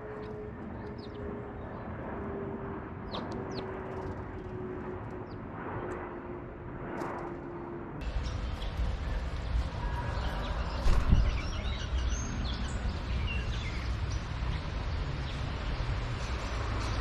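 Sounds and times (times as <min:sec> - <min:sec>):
outdoor background noise: 0:00.0 - 0:17.0
small birds chirping: 0:00.2 - 0:01.9, 0:03.0 - 0:04.2, 0:08.0 - 0:17.0.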